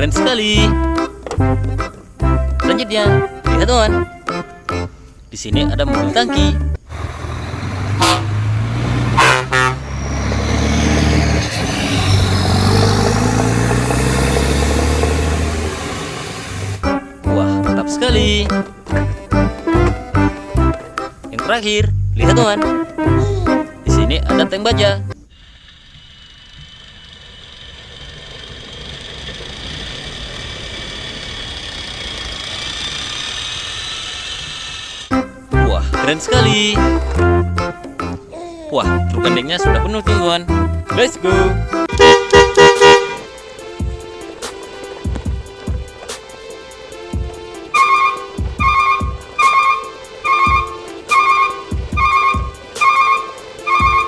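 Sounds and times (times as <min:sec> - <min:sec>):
truck engine running: 0:06.8 - 0:21.3, 0:25.3 - 0:35.2, 0:38.9 - 0:54.0
truck horn tooting: 0:07.0 - 0:11.4, 0:41.8 - 0:43.3, 0:47.7 - 0:54.0.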